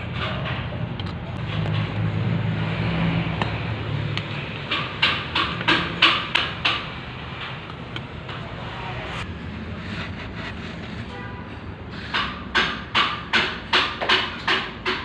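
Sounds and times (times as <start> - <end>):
sharp knocks: 4.2 - 7.0, 12.1 - 15.0.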